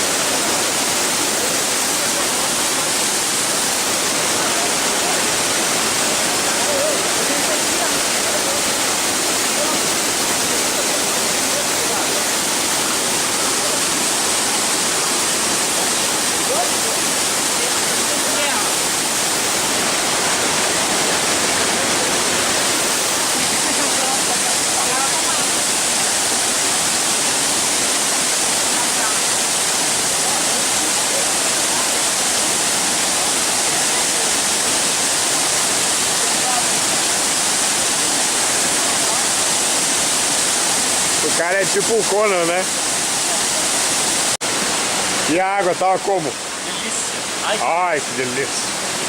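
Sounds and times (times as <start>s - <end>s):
waterfall rushing into pool: 0.0s - 49.0s.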